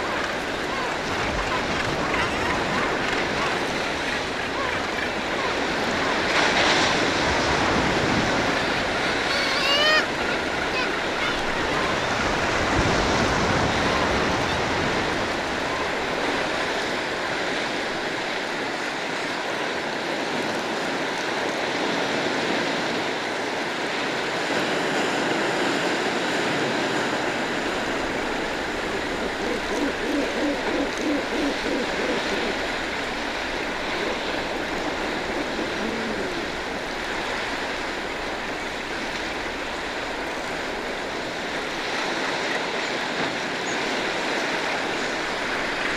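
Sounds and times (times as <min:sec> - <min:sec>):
seabird colony calling: 0:00.0 - 0:19.1, 0:27.0 - 0:45.9
sea surf: 0:00.0 - 0:45.9
rapid pulsed bird calls: 0:27.5 - 0:41.9.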